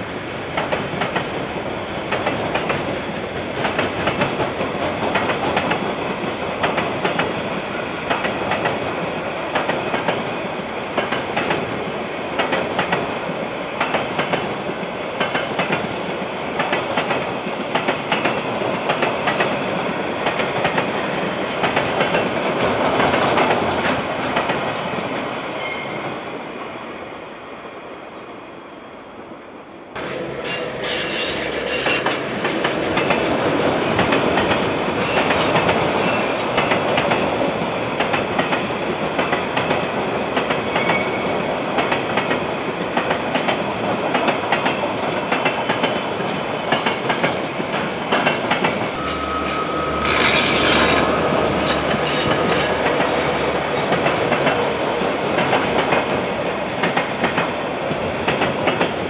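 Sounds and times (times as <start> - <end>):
freight train rolling past: 0.0 - 59.0
thin squeal: 25.6 - 26.0, 49.0 - 52.3.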